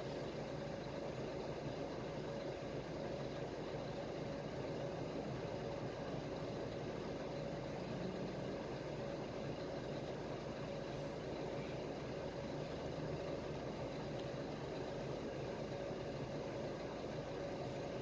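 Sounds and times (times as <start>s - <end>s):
faint steady whine: 0.0s - 18.0s
bus engine hum inside cabin: 3.9s - 14.0s.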